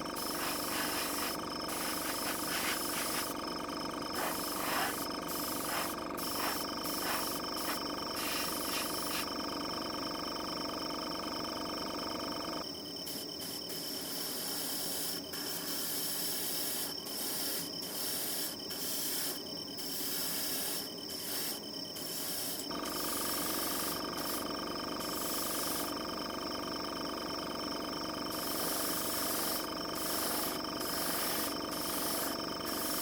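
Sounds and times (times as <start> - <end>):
high pulsing trill: 0.0 - 3.4, 4.0 - 9.2.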